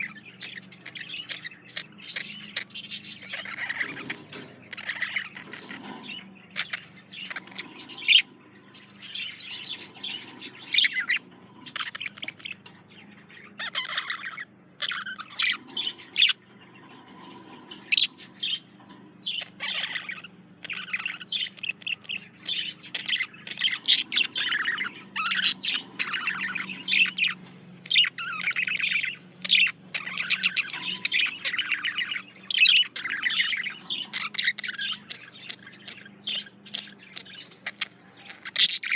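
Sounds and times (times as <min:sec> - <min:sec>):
budgerigar chattering warble: 0:09.0 - 0:38.9.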